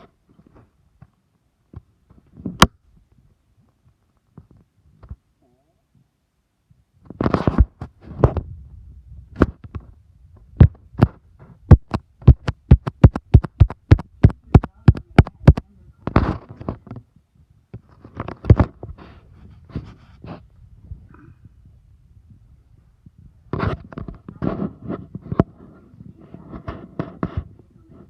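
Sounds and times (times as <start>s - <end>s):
sharp knocks: 10.6s - 16.4s.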